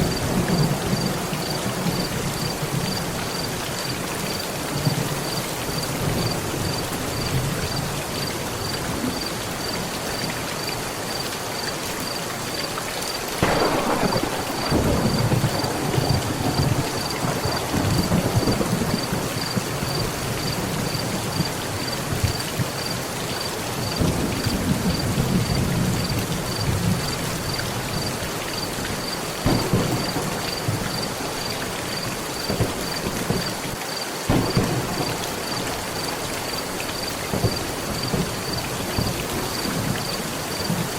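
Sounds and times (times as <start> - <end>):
thunder cracking and rumbling: 0.0 - 3.5, 13.4 - 23.0, 23.8 - 33.7, 34.3 - 40.9
heavy rain on a metal roof: 0.0 - 40.9.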